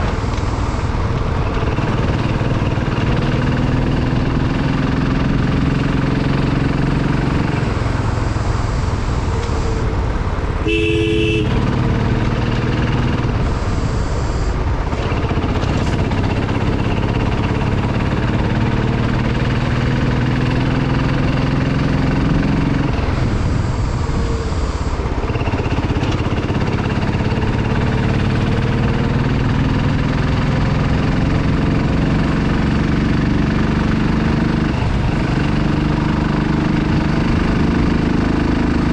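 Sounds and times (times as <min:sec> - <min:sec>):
motorcycle engine running: 0:00.0 - 0:38.9
motorcycle horn toot: 0:10.6 - 0:12.0.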